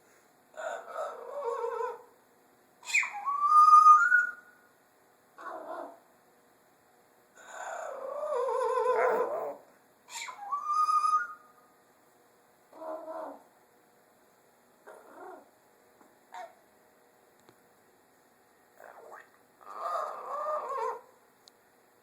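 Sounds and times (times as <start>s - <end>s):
parrot calling: 2.8s - 4.5s, 7.4s - 11.6s, 18.8s - 21.1s
parrot rising whistle: 2.8s - 4.6s, 10.1s - 11.6s.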